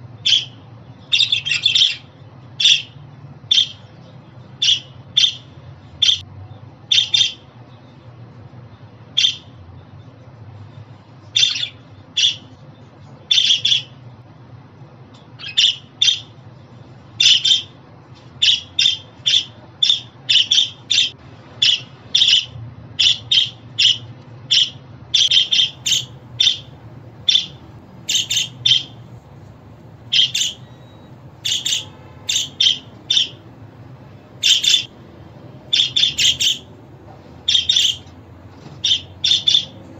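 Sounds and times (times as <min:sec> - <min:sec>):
budgerigars chirping and squawking: 0:00.2 - 0:03.8, 0:04.6 - 0:06.2, 0:06.9 - 0:07.4, 0:09.2 - 0:09.5, 0:11.4 - 0:12.5, 0:13.3 - 0:13.9, 0:15.4 - 0:16.3, 0:17.2 - 0:17.7, 0:18.4 - 0:29.1, 0:30.0 - 0:33.5, 0:34.4 - 0:34.9, 0:35.7 - 0:36.7, 0:37.4 - 0:39.9.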